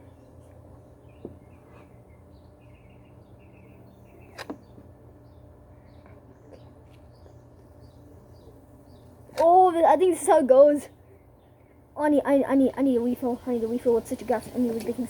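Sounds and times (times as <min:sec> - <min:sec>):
birds chirping: 0:00.0 - 0:15.0
low background hum: 0:00.0 - 0:15.0.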